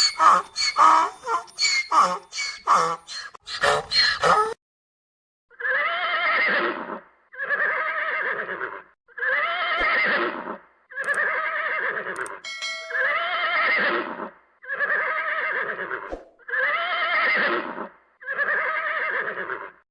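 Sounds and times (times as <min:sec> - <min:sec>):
horse neighing: 0:05.6 - 0:12.3, 0:13.1 - 0:19.7
bell-like ding: 0:12.4 - 0:13.4.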